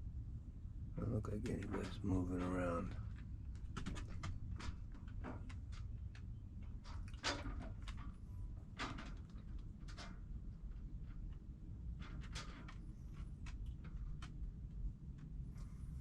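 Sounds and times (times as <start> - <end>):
steady low rumble: 0.0 - 16.0
boat knocks and clicks: 1.0 - 15.4.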